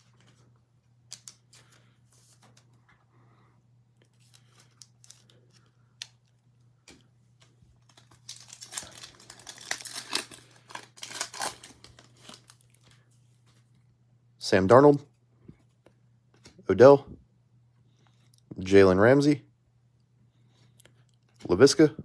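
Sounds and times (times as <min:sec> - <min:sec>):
faint steady hum: 0:00.0 - 0:22.0
foil wrapper tearing and crinkling: 0:07.8 - 0:12.9.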